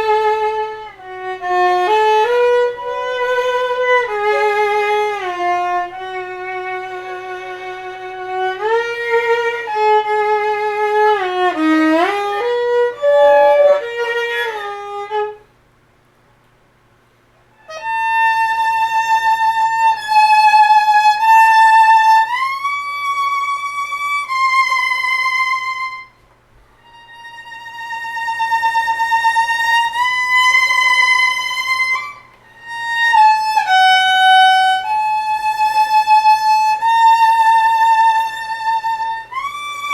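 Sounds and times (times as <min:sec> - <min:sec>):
solo violin with vibrato: 0:00.0 - 0:15.5, 0:17.6 - 0:26.2, 0:26.8 - 0:39.9.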